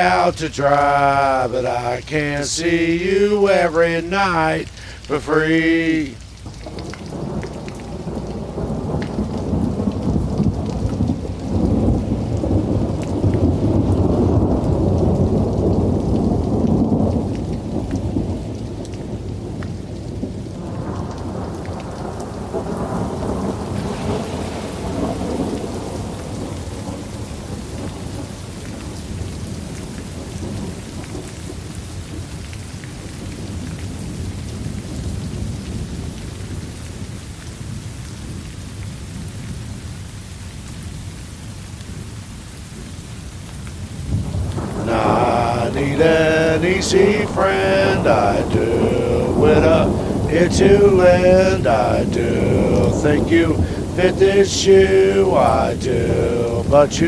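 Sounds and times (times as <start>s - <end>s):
steady rain: 0.0s - 57.0s
thunder rolling: 6.1s - 29.2s, 44.1s - 57.0s.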